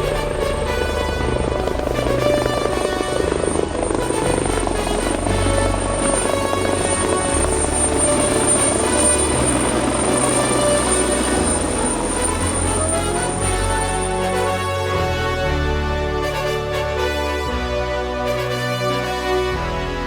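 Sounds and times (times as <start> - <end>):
helicopter rotor and engines: 0.0 - 14.4
background music with bass line: 0.0 - 20.0.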